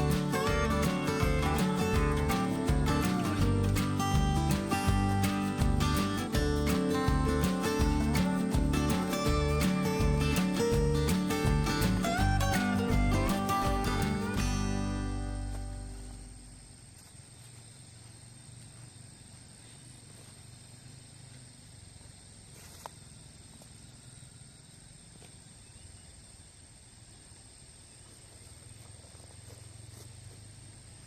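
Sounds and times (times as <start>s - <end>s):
low hum: 0.0s - 16.9s
high insect drone: 0.0s - 31.0s.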